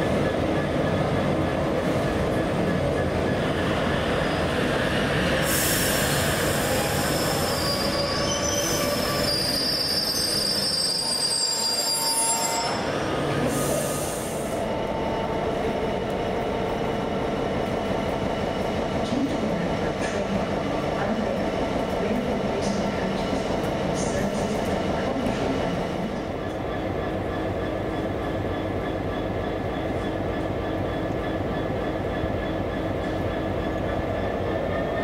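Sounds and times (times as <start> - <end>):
train running on rails: 0.0 - 35.0
high-pitched wheel squeal: 6.8 - 12.9.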